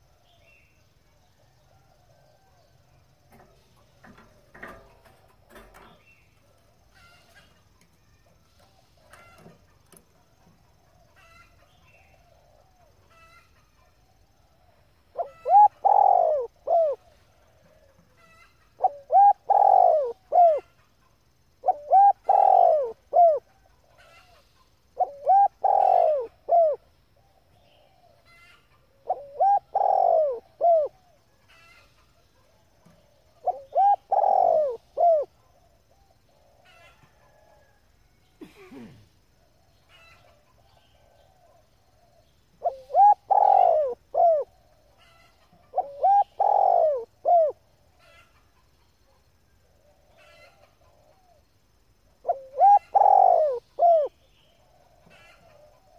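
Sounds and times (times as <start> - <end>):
dove cooing: 8.2 - 20.8, 21.5 - 37.8, 38.4 - 48.6, 52.2 - 55.9.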